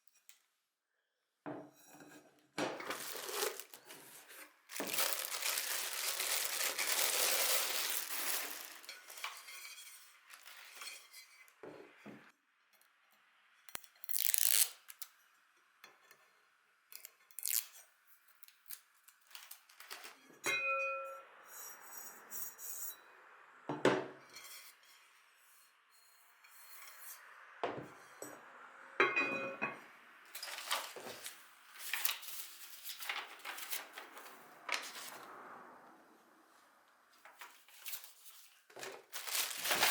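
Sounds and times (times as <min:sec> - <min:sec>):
packaging rustling and tearing: 0:02.8 - 0:09.5, 0:14.0 - 0:14.8, 0:17.3 - 0:17.7, 0:30.4 - 0:35.2, 0:37.4 - 0:39.9.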